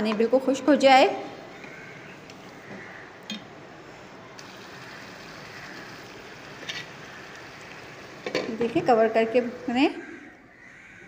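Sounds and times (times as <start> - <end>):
meat sizzling in a pan: 4.4 - 9.7.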